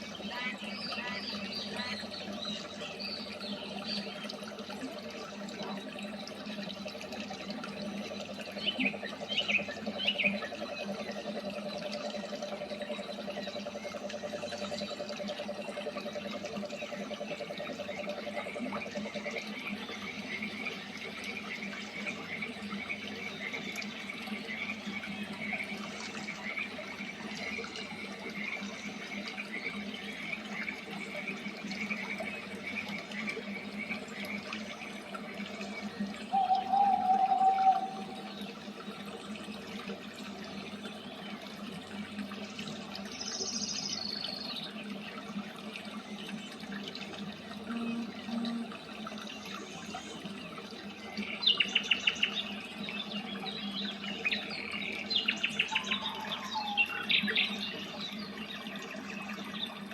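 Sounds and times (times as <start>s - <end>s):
waterfall running: 52.4s - 59.9s
birds chirping: 53.6s - 58.3s.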